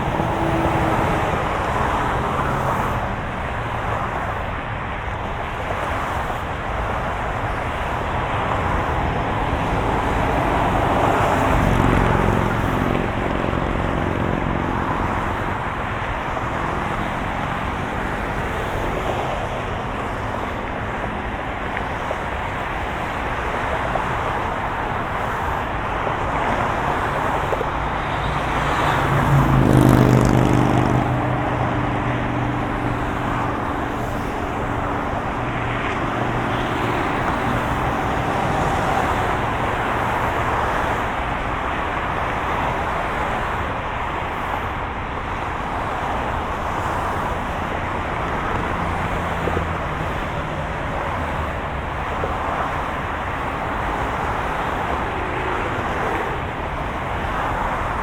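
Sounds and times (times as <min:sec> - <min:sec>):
car engine hum: 0:00.0 - 0:58.0.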